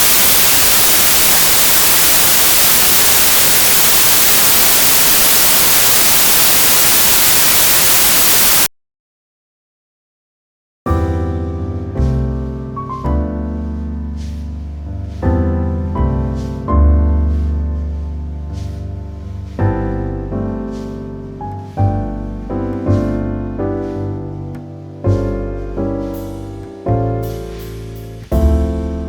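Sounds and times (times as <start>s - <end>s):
slow piano music: 10.9s - 29.0s.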